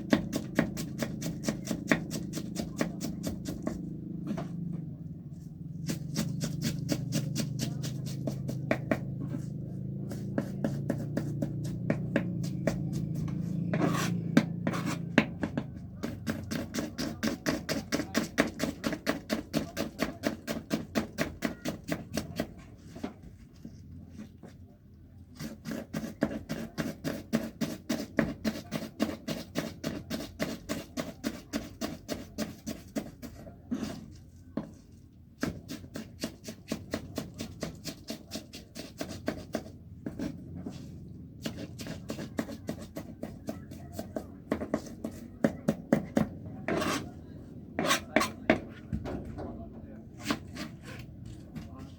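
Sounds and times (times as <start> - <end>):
knife chopping on cutting board: 0.0 - 3.8, 5.8 - 9.1.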